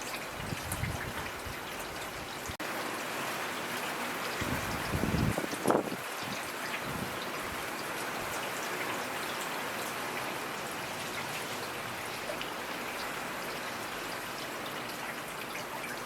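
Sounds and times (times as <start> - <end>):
rain hissing: 0.0 - 16.0
raindrops ticking on a surface: 0.0 - 16.0.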